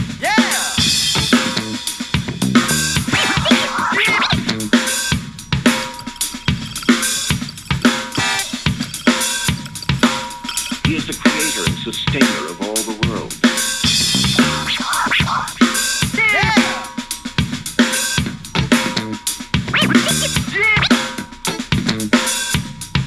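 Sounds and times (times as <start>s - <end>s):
music with drum-kit beat: 0.0s - 23.0s.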